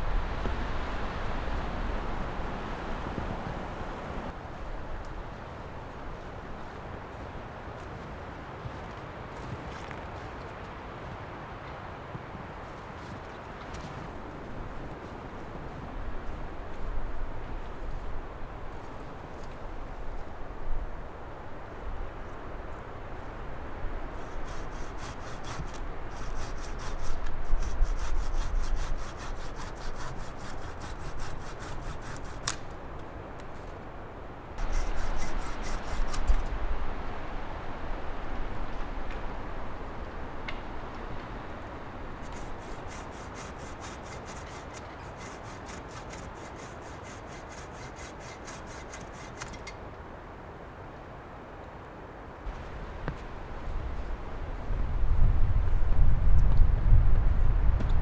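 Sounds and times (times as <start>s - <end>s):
fast rasping strokes: 24.1s - 32.8s, 34.6s - 36.5s, 42.2s - 49.8s
hand saw cutting wood: 24.1s - 32.8s, 34.6s - 36.5s, 42.2s - 49.8s.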